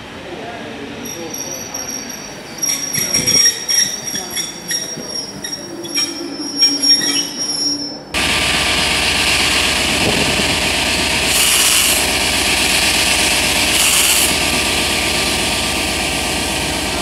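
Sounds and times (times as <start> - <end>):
train wheel squeal: 1.0 - 8.2, 11.3 - 12.1, 13.6 - 14.4
diesel locomotive engine drone: 4.6 - 17.0
loud steady hiss: 8.2 - 17.0.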